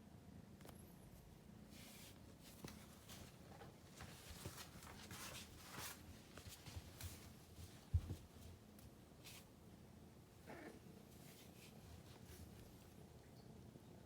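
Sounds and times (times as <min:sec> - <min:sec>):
kitten paws rustling on floor: 0:01.7 - 0:09.6, 0:11.0 - 0:13.0.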